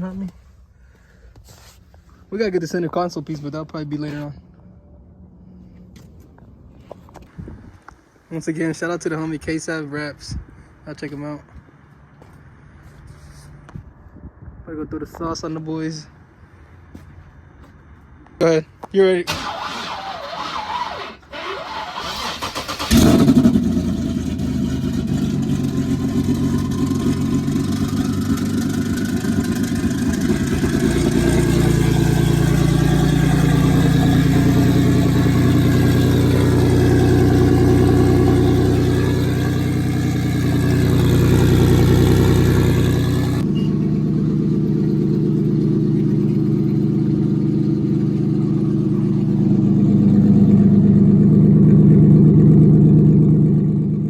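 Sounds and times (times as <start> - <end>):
car engine starting and running: 19.0 - 54.0.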